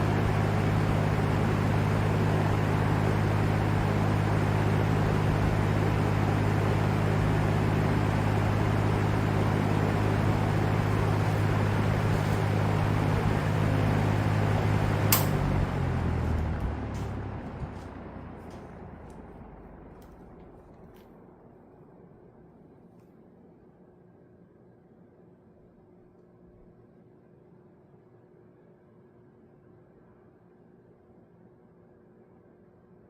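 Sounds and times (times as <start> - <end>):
box fan running: 0.0 - 33.0
sharp click: 15.1 - 15.4.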